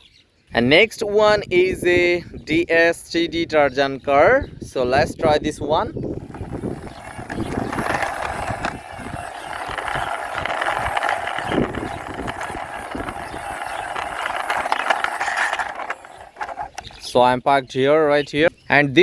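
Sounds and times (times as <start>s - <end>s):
low rumbling wind on microphone: 4.3s - 14.8s
toy wheels rolling along a wall: 6.1s - 17.2s.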